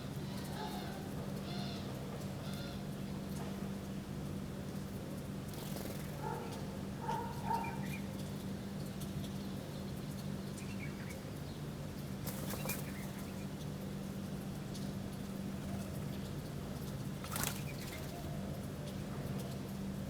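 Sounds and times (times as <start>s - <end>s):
wings flapping: 5.5s - 6.2s, 12.2s - 13.1s, 17.2s - 18.2s
birds calling: 6.2s - 8.2s.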